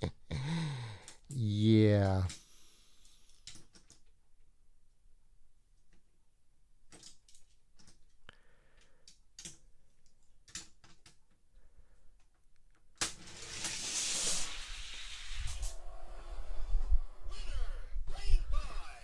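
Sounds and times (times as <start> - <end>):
toy trucks clicking on plastic track: 13.0 - 15.7.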